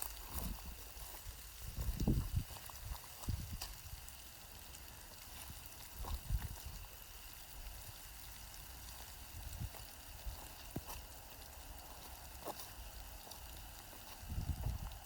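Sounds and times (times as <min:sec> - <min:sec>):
rain hissing: 0:00.0 - 0:15.0.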